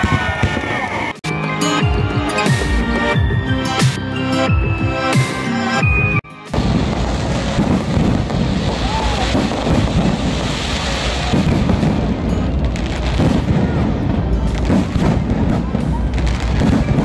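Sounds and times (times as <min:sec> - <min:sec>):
fireworks crackling and booming: 0:00.0 - 0:01.3, 0:06.4 - 0:17.0
music: 0:00.0 - 0:17.0.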